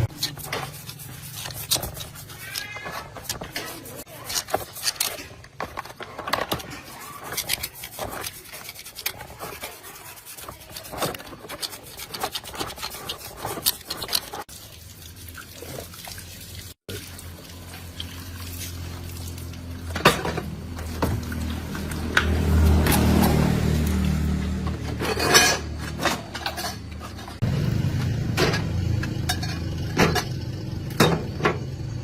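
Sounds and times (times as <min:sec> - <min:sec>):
hand scraping metal parts: 0:00.0 - 0:14.5, 0:17.8 - 0:31.7
engine humming: 0:17.0 - 0:32.0.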